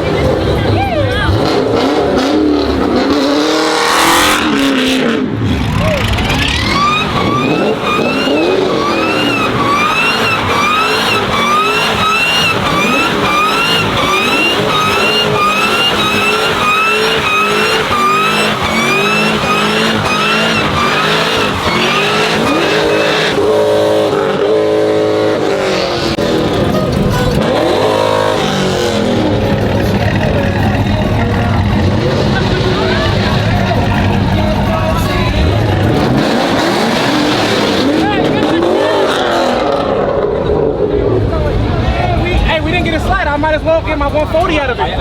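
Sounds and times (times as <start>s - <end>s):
car engine revving: 0.0s - 45.0s
tyres squealing: 5.7s - 39.6s.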